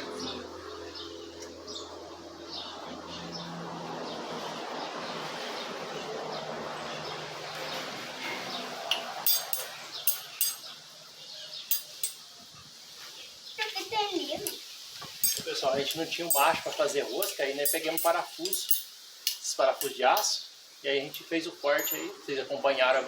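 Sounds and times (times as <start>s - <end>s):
sharp metallic clinks: 8.9s - 10.8s, 11.7s - 12.3s, 15.2s - 20.4s, 21.0s - 22.2s.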